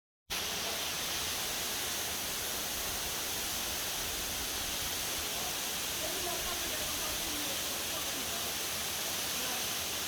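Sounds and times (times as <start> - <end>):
waterfall pouring: 0.3 - 10.0.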